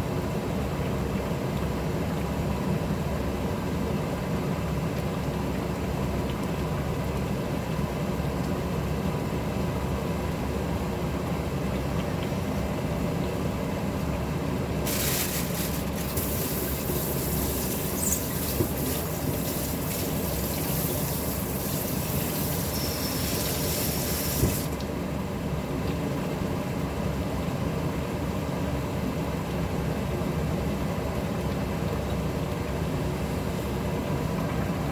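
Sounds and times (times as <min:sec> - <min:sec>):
kitchen tap running: 0:14.9 - 0:24.8.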